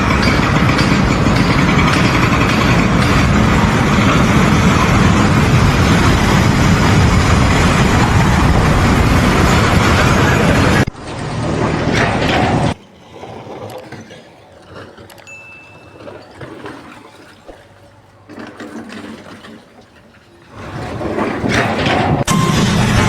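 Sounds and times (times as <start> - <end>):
heavy engine running: 0.0 - 12.8, 21.5 - 23.0.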